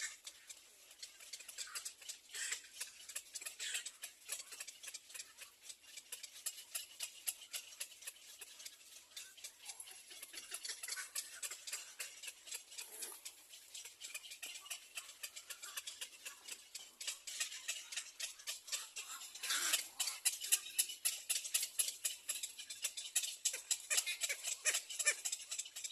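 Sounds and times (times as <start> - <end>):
baby birds cheeping: 0.0 - 25.9.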